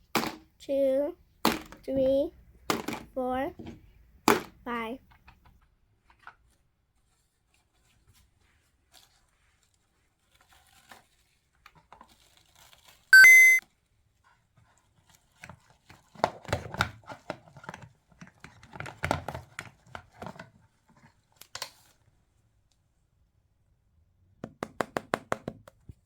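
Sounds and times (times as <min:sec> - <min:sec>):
plastic packaging crinkling: 0:10.2 - 0:11.4, 0:12.0 - 0:13.1
bright chime: 0:13.2 - 0:13.6.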